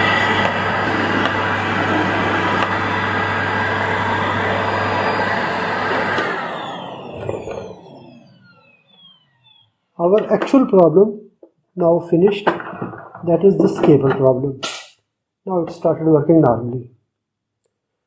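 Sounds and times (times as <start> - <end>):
vacuum cleaner motor running: 0.0 - 9.7.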